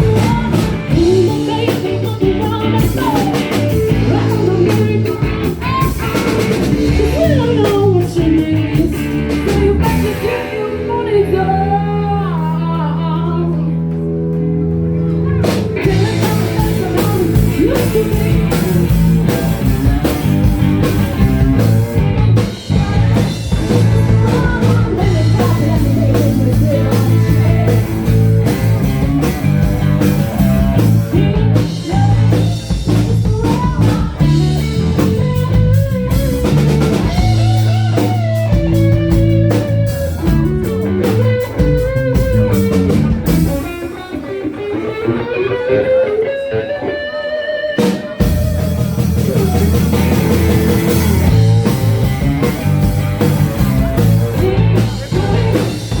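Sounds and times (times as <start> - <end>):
rock band playing: 0.0 - 56.0
guitar sliding bending notes: 34.2 - 56.0.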